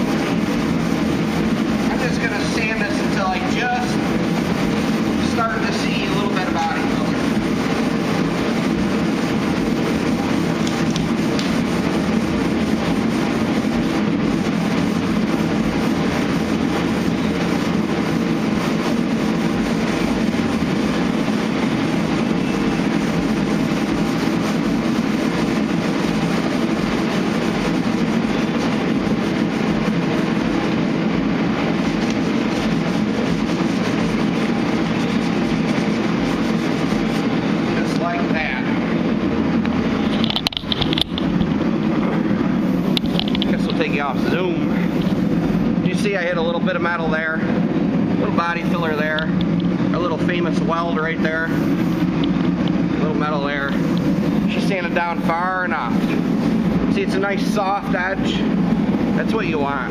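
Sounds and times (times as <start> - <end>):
sander running: 0.0 - 45.9.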